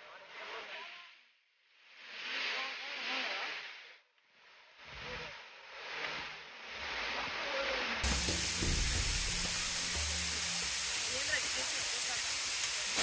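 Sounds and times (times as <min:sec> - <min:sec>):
waterfall rushing: 0:08.0 - 0:13.0.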